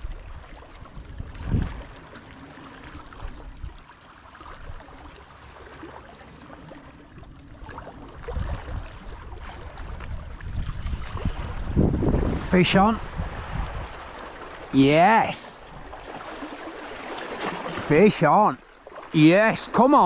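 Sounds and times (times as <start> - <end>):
wind buffeting microphone: 0.0 - 2.2, 7.2 - 16.7
sea waves washing: 0.9 - 20.0.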